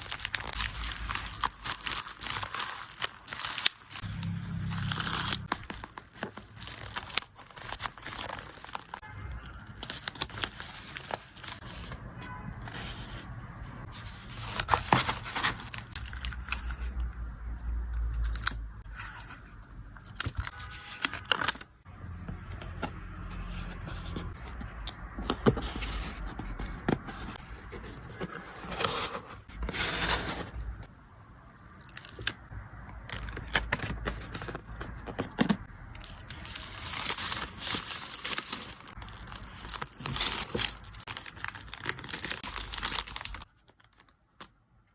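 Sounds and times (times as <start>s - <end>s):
plastic crinkling and tearing: 0.0s - 9.0s, 9.6s - 11.7s, 14.4s - 17.0s, 36.0s - 44.9s.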